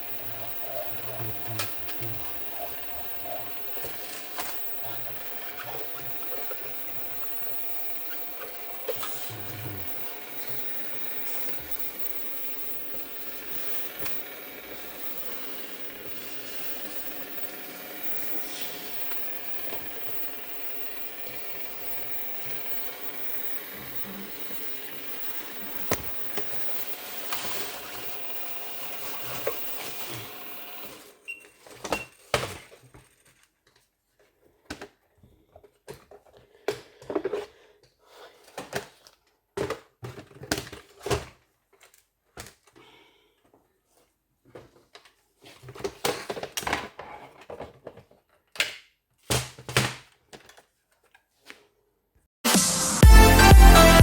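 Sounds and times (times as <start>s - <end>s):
small electric motor humming: 0.0s - 31.3s.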